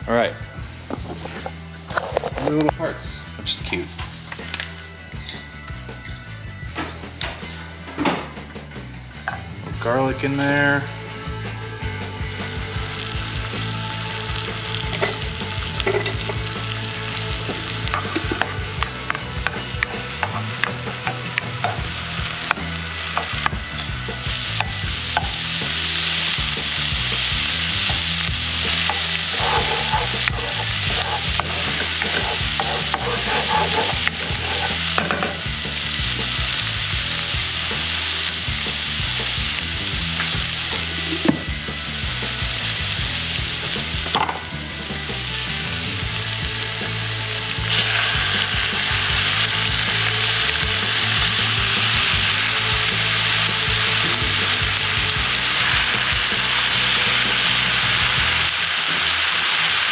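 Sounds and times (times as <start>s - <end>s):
garlic sizzling in oil: 12.3s - 59.9s
utensil stirring in pan: 17.9s - 35.5s.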